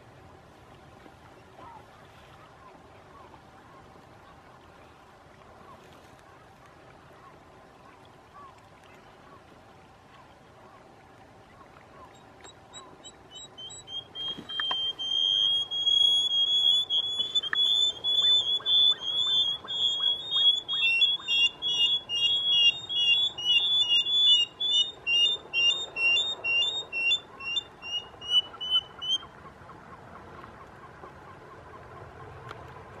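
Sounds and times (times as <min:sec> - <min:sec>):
lower-pitched bird calling: 0:12.0 - 0:29.4
bird high whistled notes: 0:12.7 - 0:29.3.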